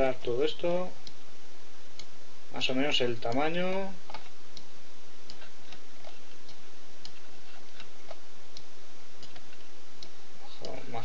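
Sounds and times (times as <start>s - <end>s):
microphone hiss: 0.0s - 11.0s
computer mouse clicking: 5.3s - 10.8s.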